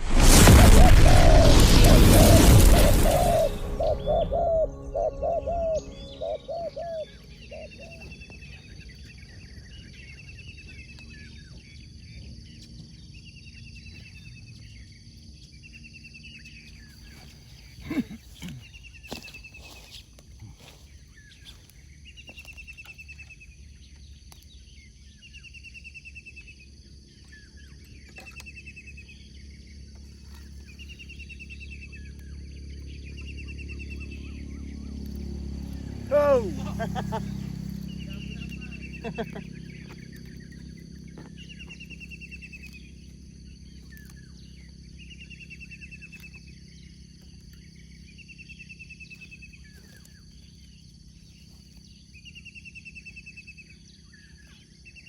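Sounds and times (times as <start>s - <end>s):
brief low falling sound: 0.0s - 7.2s
bird trilling: 0.5s - 8.4s, 36.0s - 42.8s.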